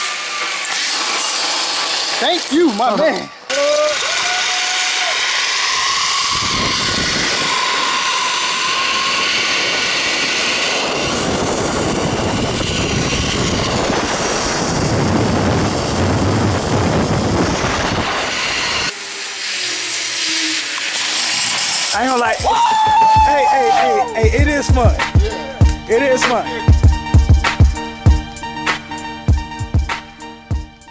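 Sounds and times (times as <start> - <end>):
zip-line trolley on steel cable: 0.0 - 24.2
wind rushing over microphone: 6.1 - 18.9.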